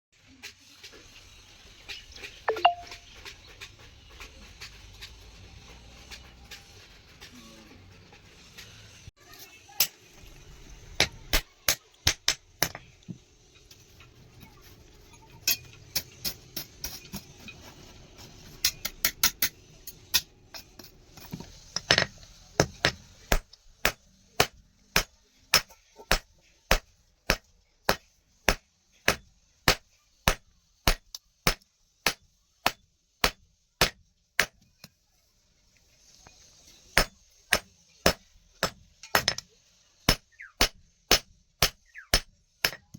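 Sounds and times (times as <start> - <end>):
hammer striking steel on anvil: 21.8 - 34.6, 37.0 - 39.5, 40.1 - 42.9.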